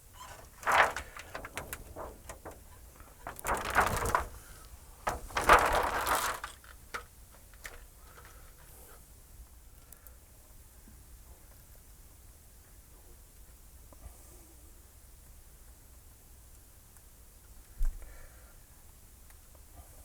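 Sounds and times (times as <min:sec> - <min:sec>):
rustling and clatter: 0:00.0 - 0:08.4.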